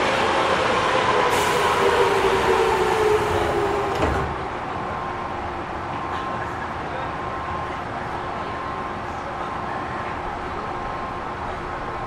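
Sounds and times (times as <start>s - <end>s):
train stopping thump: 1.2s - 4.6s.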